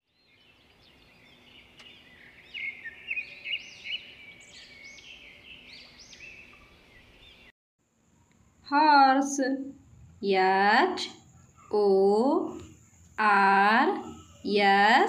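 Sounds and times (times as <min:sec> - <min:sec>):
birds chirping and singing: 0:00.1 - 0:07.5
faint outdoor background noise: 0:00.1 - 0:15.0.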